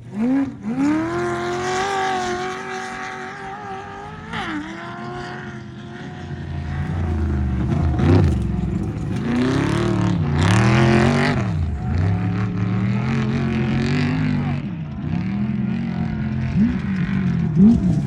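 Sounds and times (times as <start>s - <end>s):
truck engine revving: 0.0s - 18.0s
vehicle passing: 6.3s - 14.6s.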